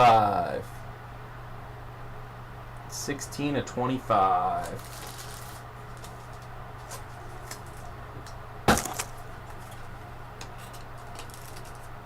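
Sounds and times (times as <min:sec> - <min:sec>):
steady low hum: 0:00.0 - 0:12.0
small clicks and rustles of cards: 0:04.6 - 0:08.0, 0:09.0 - 0:12.0.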